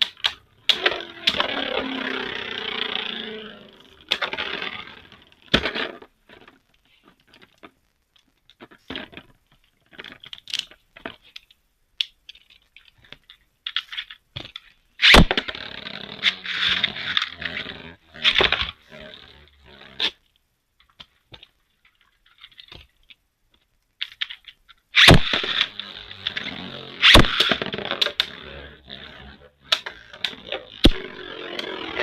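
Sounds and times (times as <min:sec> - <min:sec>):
spinning top scraping: 0:00.0 - 0:06.6, 0:15.0 - 0:20.2, 0:25.0 - 0:32.0
tops clicking and clacking: 0:24.5 - 0:32.0.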